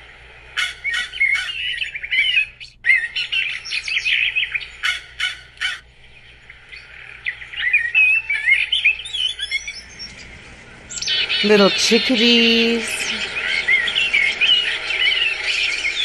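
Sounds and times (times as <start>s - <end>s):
wild birds chirping and twittering: 0.0s - 16.0s
short harsh bird calls: 0.6s - 5.8s.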